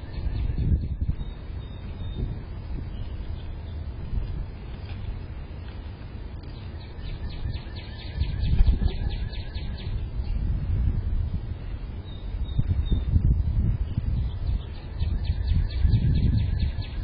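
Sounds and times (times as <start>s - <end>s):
songbird trilling: 0.0s - 3.9s, 6.4s - 10.5s, 13.9s - 17.0s
wind rumble on microphone: 0.0s - 17.0s.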